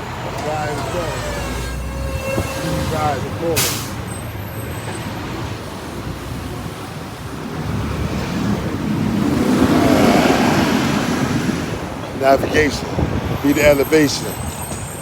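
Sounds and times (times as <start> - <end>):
vehicle passing: 0.0 - 13.8
road traffic noise: 0.0 - 15.0
wind rushing over microphone: 5.4 - 14.8.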